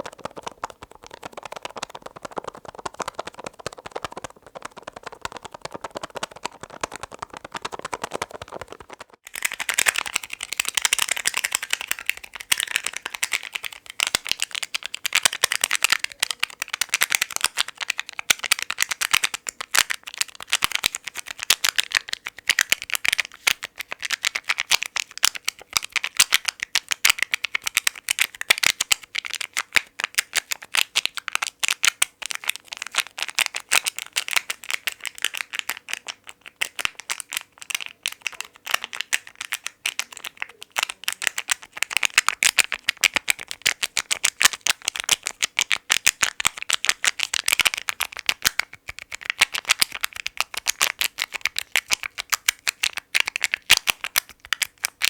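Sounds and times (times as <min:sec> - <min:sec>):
fast tapping on packaging: 0:00.0 - 0:55.0.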